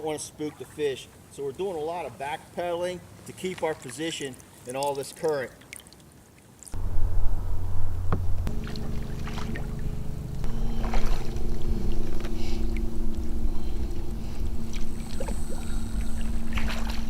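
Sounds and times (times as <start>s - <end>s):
low hum and rumble of pedal drive: 6.8s - 17.0s
water splashing against hull: 7.8s - 17.0s.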